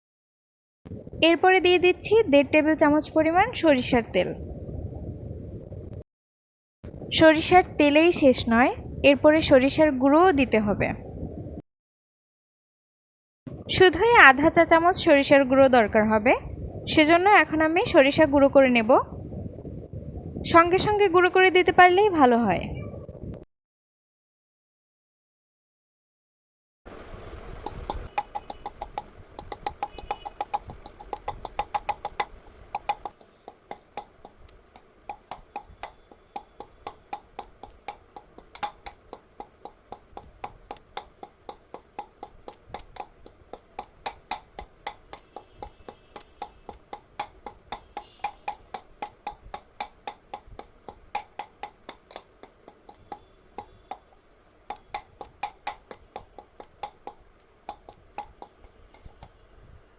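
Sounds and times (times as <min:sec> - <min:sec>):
pestle pounding in mortar: 0:27.8 - 0:59.3.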